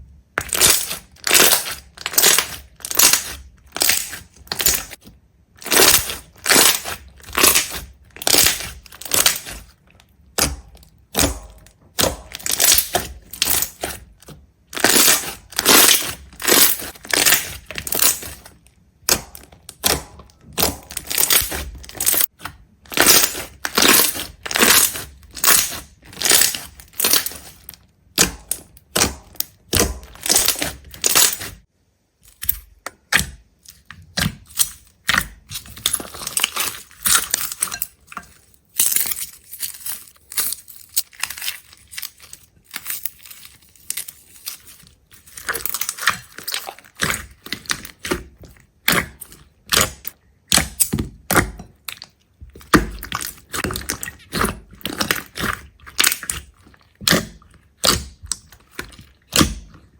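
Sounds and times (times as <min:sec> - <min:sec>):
crisp crunching: 0:00.4 - 0:11.4, 0:12.2 - 0:28.7, 0:35.5 - 0:50.2.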